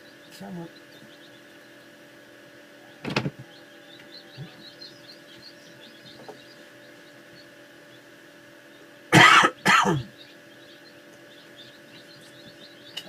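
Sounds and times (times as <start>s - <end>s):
chick cheeping: 0.0s - 13.0s
steady hum: 0.0s - 13.0s
person coughing: 9.1s - 10.1s.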